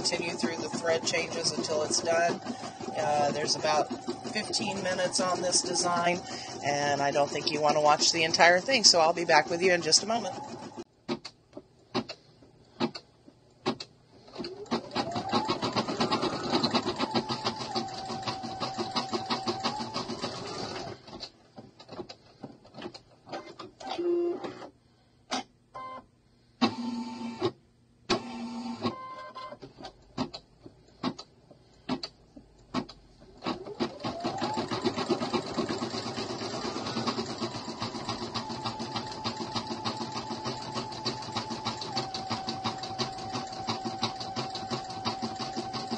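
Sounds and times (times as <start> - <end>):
embroidery machine stitching hum: 0.0 - 11.2, 13.6 - 24.7, 32.7 - 45.9.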